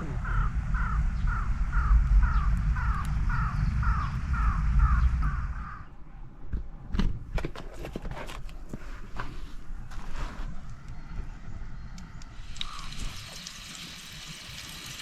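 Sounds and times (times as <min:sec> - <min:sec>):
low rumble: 0:00.0 - 0:06.8
crow cawing: 0:00.2 - 0:05.9, 0:12.6 - 0:13.0.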